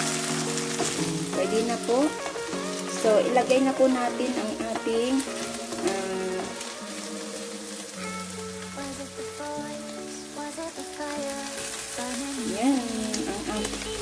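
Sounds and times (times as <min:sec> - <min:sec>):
spatula stirring: 0:00.0 - 0:08.7
background music with held notes: 0:00.0 - 0:14.0
food sizzling in a frying pan: 0:00.0 - 0:14.0.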